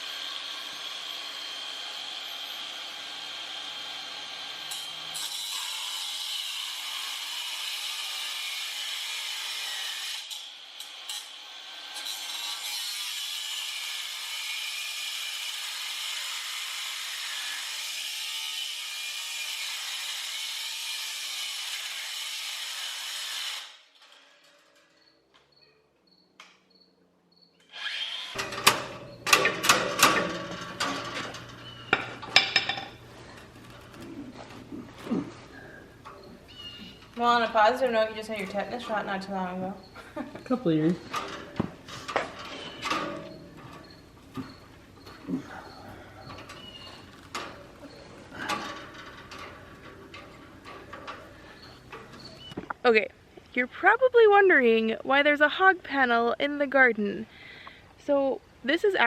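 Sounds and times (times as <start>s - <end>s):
angle grinder cutting wire: 0.0s - 24.6s, 27.6s - 52.6s
metal knocks and rattles: 28.4s - 34.7s, 41.0s - 52.7s.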